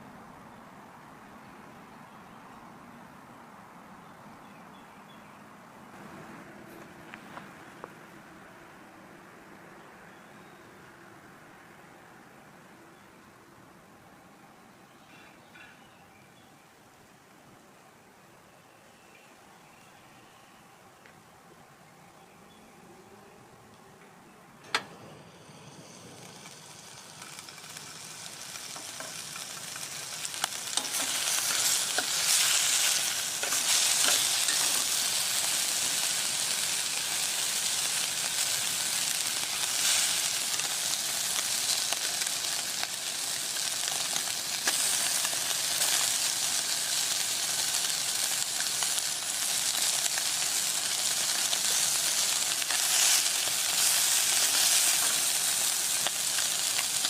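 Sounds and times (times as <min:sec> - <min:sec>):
food sizzling in a pan: 0:25.4 - 0:57.0.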